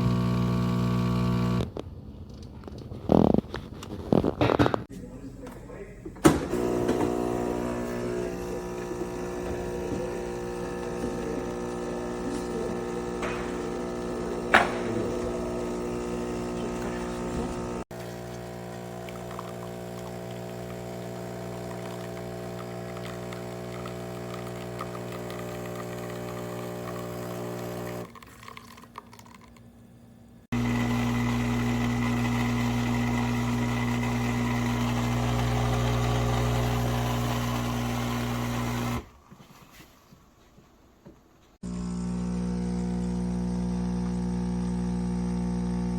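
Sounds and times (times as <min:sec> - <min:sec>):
espresso machine pump hum: 0:00.0 - 0:01.7, 0:06.5 - 0:28.1, 0:30.5 - 0:39.1, 0:41.6 - 0:45.9.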